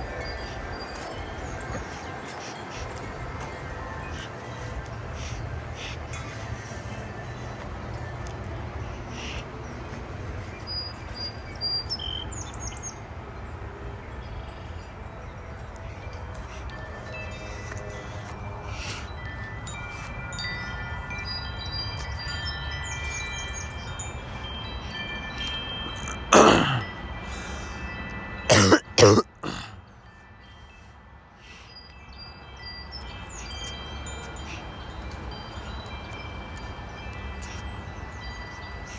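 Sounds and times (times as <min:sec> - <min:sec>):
gusty wind: 0:00.0 - 0:29.0
wind chimes ringing: 0:00.0 - 0:38.9
songbird chirping and whistling: 0:09.2 - 0:13.0
person coughing: 0:26.1 - 0:26.9, 0:28.5 - 0:29.8.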